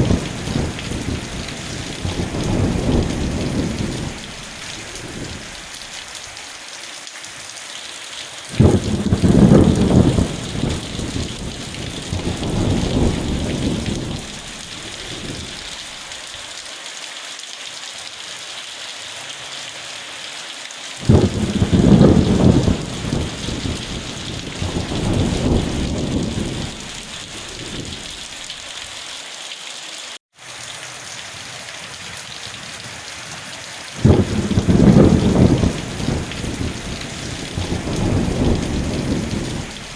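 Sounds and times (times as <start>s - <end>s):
thunder rumbling: 0.0s - 5.9s, 8.6s - 16.0s, 21.0s - 28.6s, 34.0s - 39.9s
steady rain hissing: 0.0s - 39.9s.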